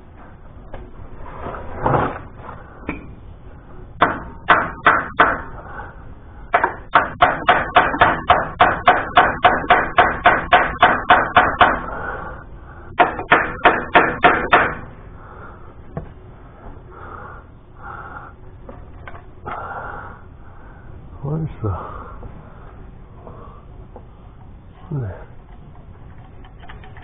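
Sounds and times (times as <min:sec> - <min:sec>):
rapid sharp knocks: 0:04.0 - 0:05.5, 0:06.5 - 0:11.9, 0:13.0 - 0:14.8.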